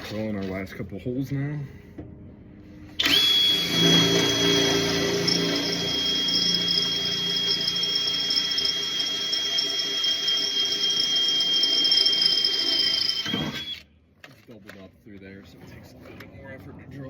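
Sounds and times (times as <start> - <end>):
power drill whining: 3.0 - 13.9.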